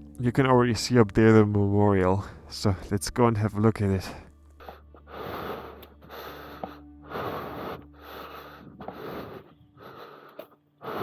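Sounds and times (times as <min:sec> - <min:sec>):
person breathing hard: 0:04.1 - 0:11.0.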